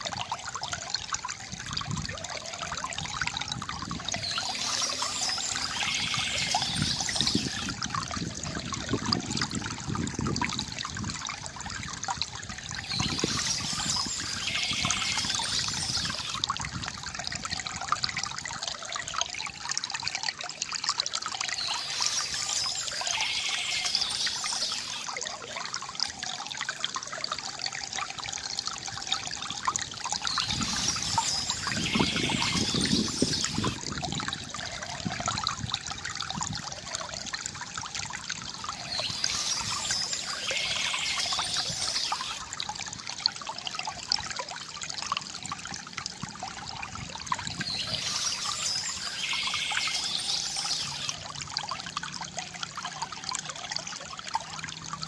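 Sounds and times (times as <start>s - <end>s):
water trickling from fountain: 0.0s - 55.0s
birds chirping: 4.1s - 7.7s, 12.8s - 16.4s, 21.5s - 25.1s, 30.2s - 33.8s, 38.7s - 42.4s, 47.5s - 51.2s.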